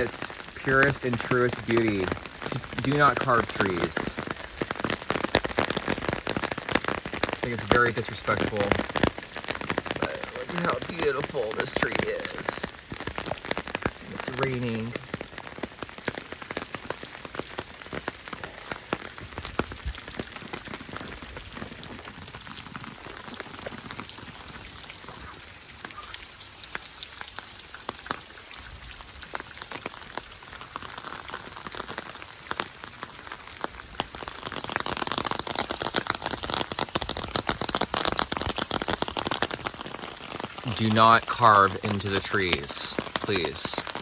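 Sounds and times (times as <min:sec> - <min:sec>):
rain hiss: 0:00.0 - 0:44.0
raindrops ticking: 0:00.0 - 0:44.0.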